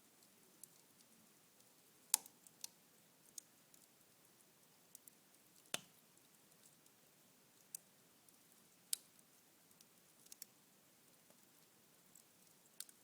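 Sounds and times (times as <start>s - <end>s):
embers crackling and popping: 2.1s - 4.0s, 4.9s - 7.0s, 7.6s - 10.5s.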